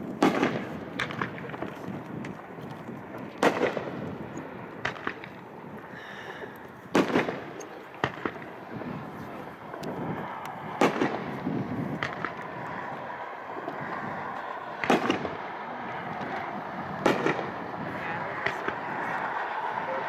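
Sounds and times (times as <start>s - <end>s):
fireworks crackling and hiss: 0.0s - 20.0s
fireworks loud sharp reports: 0.0s - 20.0s.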